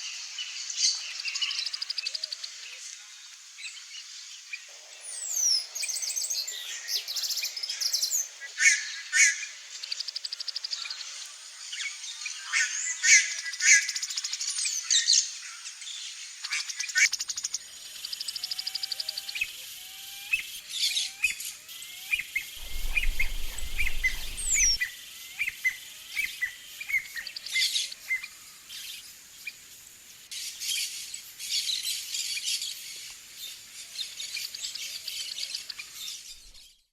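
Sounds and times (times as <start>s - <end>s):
birds chirping and whistling: 22.6s - 24.8s.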